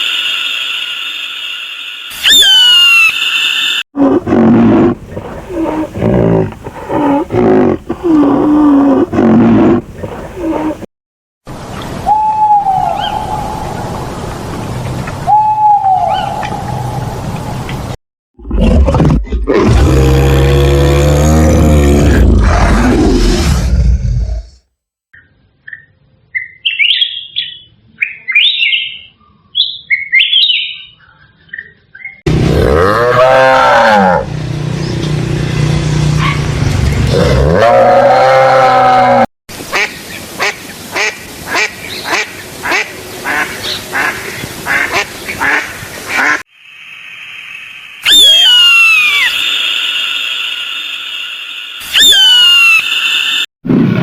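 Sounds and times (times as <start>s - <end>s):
big cat roaring and growling: 4.0s - 10.9s, 18.4s - 24.6s, 32.3s - 34.3s, 37.0s - 39.3s
bird chirping: 25.2s - 32.3s
high call: 48.0s - 53.4s.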